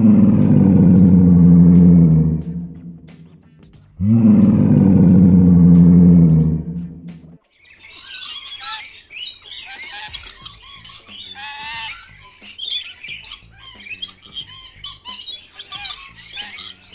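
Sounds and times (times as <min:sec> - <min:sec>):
long wavering bird call: 0:00.0 - 0:03.1
birds chirping and squawking: 0:00.0 - 0:03.4, 0:04.0 - 0:16.9.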